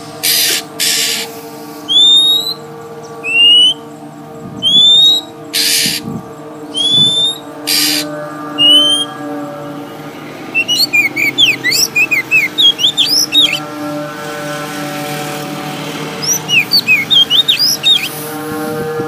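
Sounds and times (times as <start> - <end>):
low droning tone: 1.2 - 19.0
bird chirping rapidly: 1.9 - 3.9, 4.5 - 9.1, 10.5 - 13.7, 16.2 - 18.2.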